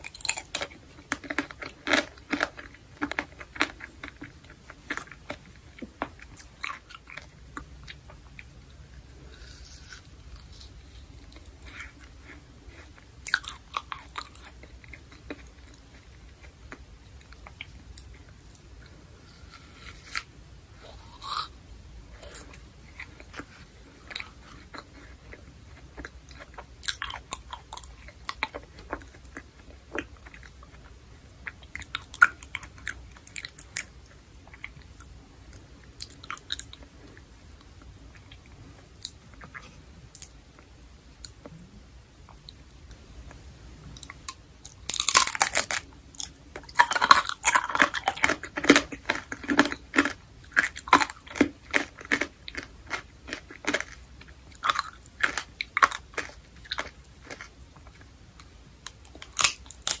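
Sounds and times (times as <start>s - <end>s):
hard candy crunching: 0.0s - 21.6s, 44.0s - 60.0s
quiet chewing: 22.2s - 41.6s, 42.2s - 60.0s.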